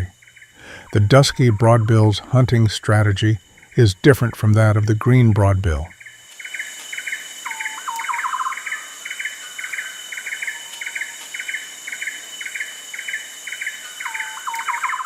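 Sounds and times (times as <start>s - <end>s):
high insect drone: 0.0s - 15.0s
lower bird call: 3.4s - 15.0s
bird double-note chirps: 5.9s - 15.0s.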